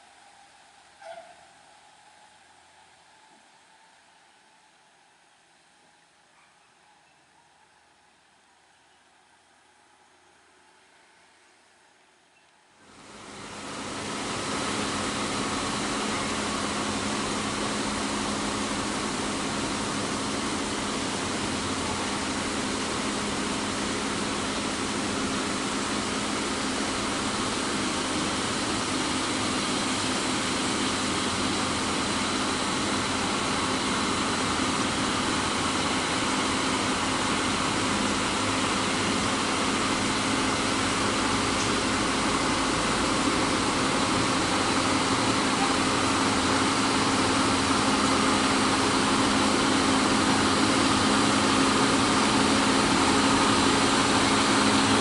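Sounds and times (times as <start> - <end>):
heavy truck engine running: 12.9 - 55.0.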